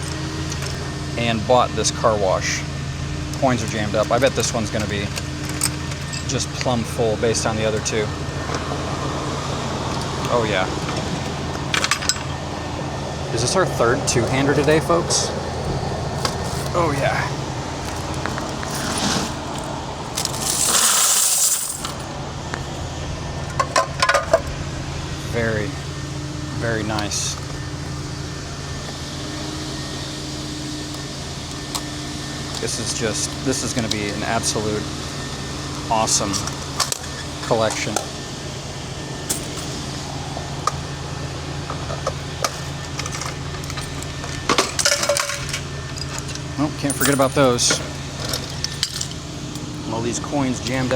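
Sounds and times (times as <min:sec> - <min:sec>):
low hum: 0:00.0 - 0:50.9
coins rattling in a bucket: 0:17.9 - 0:22.0, 0:39.3 - 0:39.8, 0:42.5 - 0:49.2.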